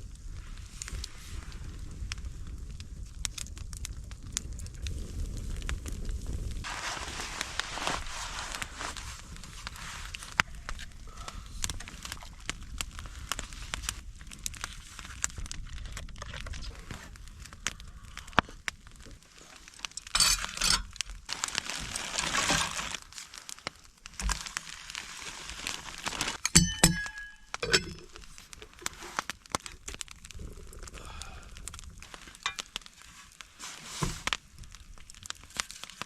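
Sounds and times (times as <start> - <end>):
rustling and crinkling of gear: 0.0 - 36.0
metal cookware clinking: 20.0 - 20.9, 26.4 - 28.2.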